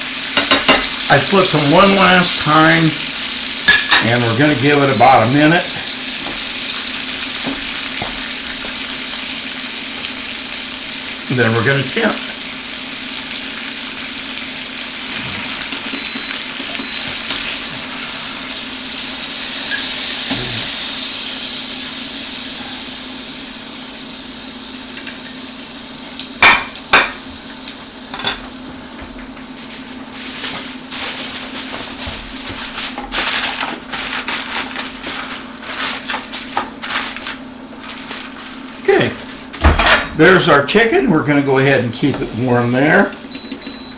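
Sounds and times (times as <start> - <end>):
chicken sizzling in frying pan: 0.0 - 43.9
utensils clattering against pan: 0.3 - 2.8, 3.7 - 8.7, 15.1 - 17.6, 28.1 - 28.5, 39.5 - 40.2.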